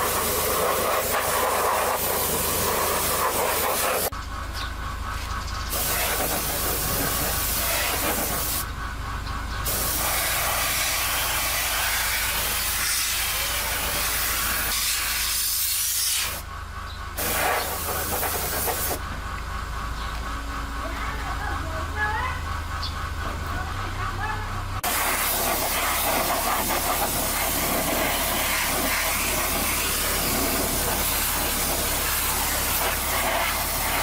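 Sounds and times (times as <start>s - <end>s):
loud steady hiss: 0.0s - 4.1s, 5.7s - 8.7s, 9.6s - 16.5s, 24.8s - 34.0s.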